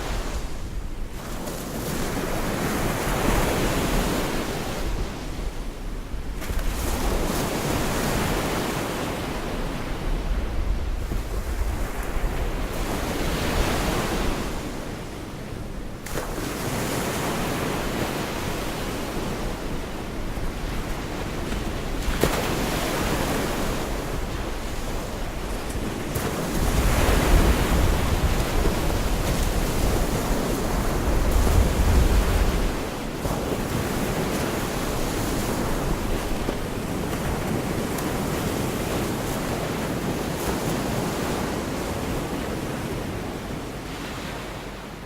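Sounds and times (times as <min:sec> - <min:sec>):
wind buffeting microphone: 0:09.6 - 0:14.8, 0:19.1 - 0:43.1
surf breaking on shore: 0:16.2 - 0:43.2.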